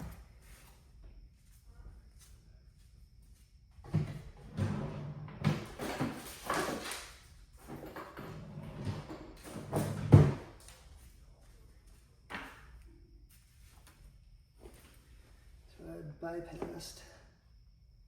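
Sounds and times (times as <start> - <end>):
hard parts clattering and rustling: 5.4 - 10.8.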